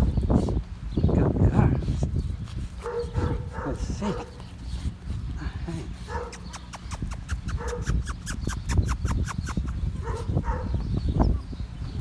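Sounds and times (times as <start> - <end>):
paws clicking and scratching: 1.6 - 11.1.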